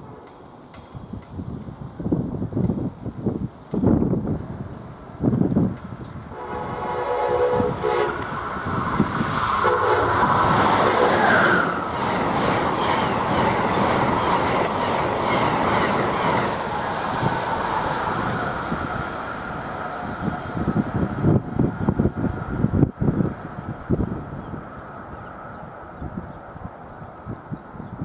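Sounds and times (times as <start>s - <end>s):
train wheel and rail noise: 0.0s - 28.0s
wheels clacking over rail joints: 5.8s - 18.8s
train horn: 6.3s - 11.7s.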